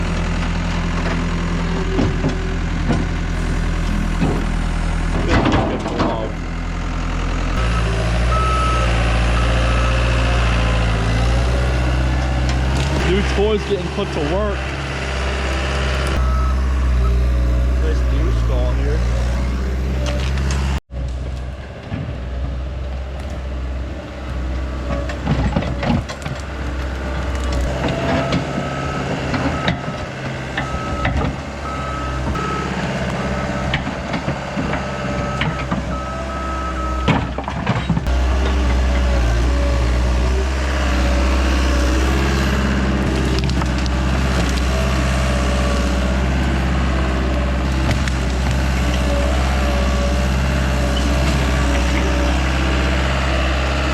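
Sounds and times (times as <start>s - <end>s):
diesel engine under load: 0.0s - 53.9s
dirt crunching and scraping: 7.4s - 53.9s
backup alarm beeping: 16.2s - 17.3s.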